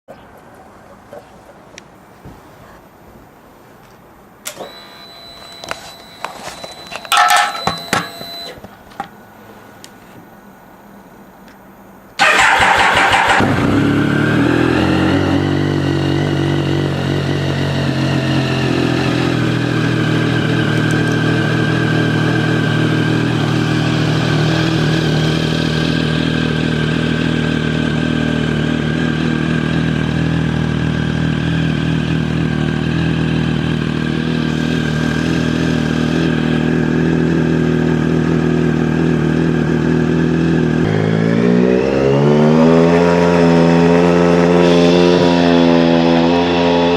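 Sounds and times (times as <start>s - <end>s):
motorcycle engine idling and revving: 12.2s - 46.9s.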